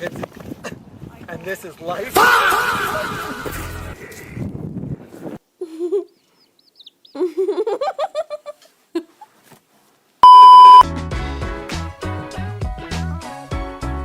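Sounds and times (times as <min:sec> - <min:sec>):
loud steady beep: 0:10.2 - 0:10.8.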